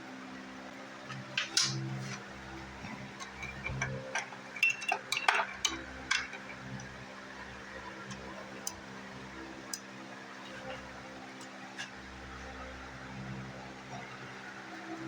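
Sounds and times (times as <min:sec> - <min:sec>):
metal hand tools clinking: 0:03.2 - 0:06.6.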